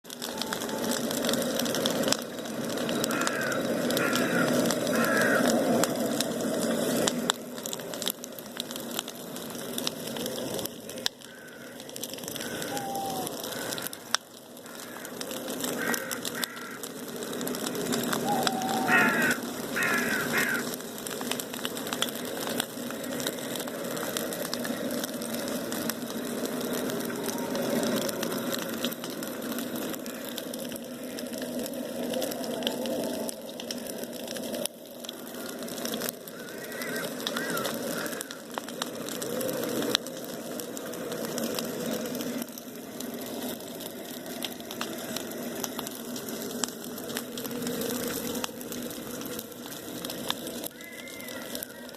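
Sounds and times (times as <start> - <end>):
bonfire crackling and popping: 0.0 - 51.9
crows cawing: 3.0 - 5.7, 11.2 - 17.0, 18.2 - 20.8, 30.0 - 30.4, 35.2 - 38.6, 50.7 - 51.9.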